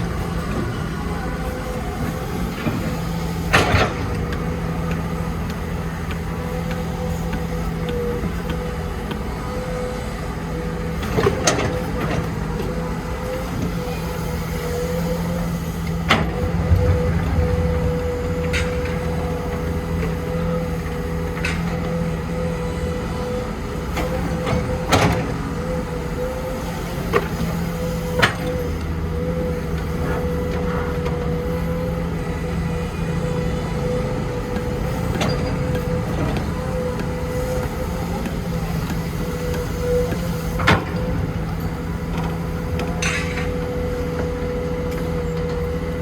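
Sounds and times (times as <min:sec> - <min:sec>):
diesel engine running: 0:00.0 - 0:46.0
sharp knocks and clanks: 0:16.1 - 0:20.4.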